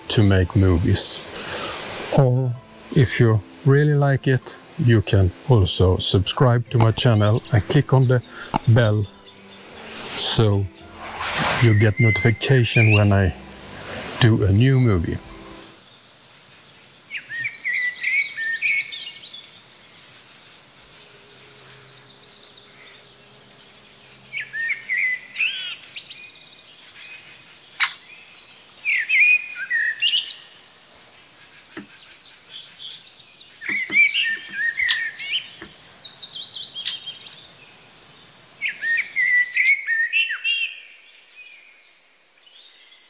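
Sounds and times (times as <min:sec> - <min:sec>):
bird singing: 0:00.0 - 0:43.0
sharp click: 0:08.5 - 0:08.8.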